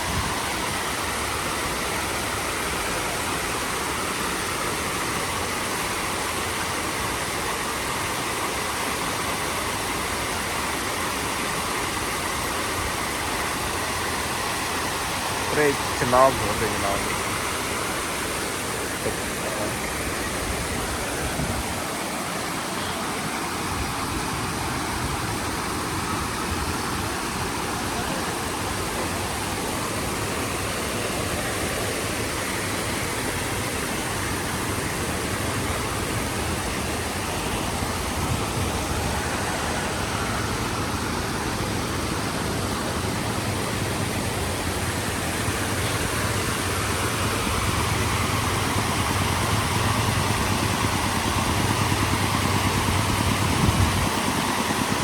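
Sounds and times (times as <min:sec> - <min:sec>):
floodwater rushing: 0:00.0 - 0:55.0
low engine hum: 0:11.9 - 0:55.0.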